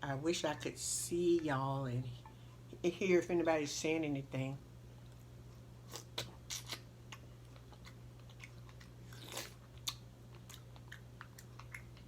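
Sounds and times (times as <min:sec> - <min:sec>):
person chewing food: 0:05.1 - 0:12.0.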